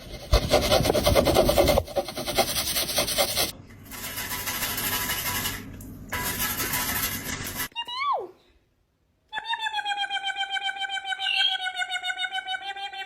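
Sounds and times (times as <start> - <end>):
rough rasping scraping: 0.0 - 5.6.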